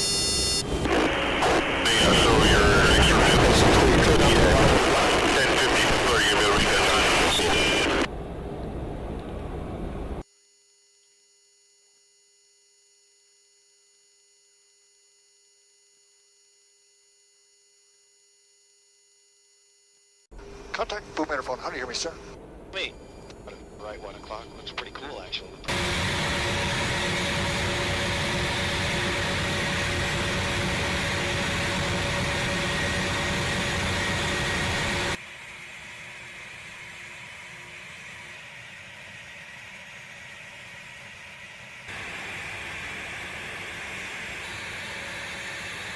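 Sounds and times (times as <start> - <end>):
steady hum tones: 0.0 - 10.2, 20.4 - 45.9
jet engine and airflow noise: 0.6 - 10.2, 20.7 - 45.9
steady rushing noise: 25.7 - 45.9.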